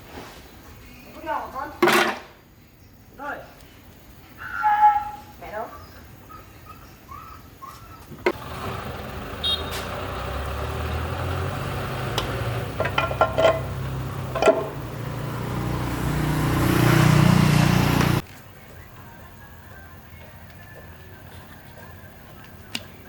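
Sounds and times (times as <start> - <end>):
tractor engine running: 8.2 - 19.3
metallic clicks and clanks: 12.1 - 14.8.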